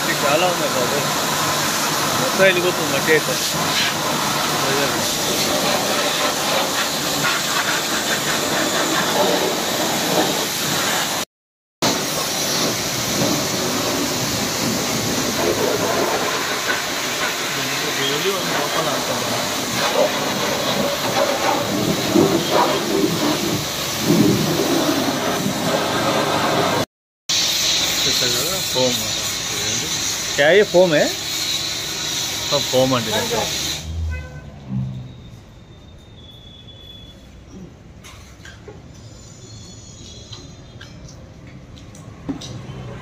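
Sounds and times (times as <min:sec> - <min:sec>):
pressure washer spraying: 0:00.0 - 0:34.0.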